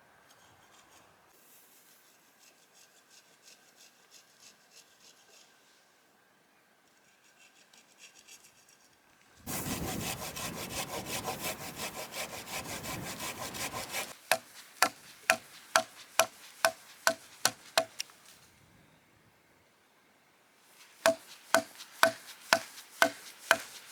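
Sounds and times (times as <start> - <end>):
hand saw cutting wood: 9.5 - 18.1, 21.0 - 23.9
sharp wooden knocks: 14.3 - 18.0, 21.1 - 23.7.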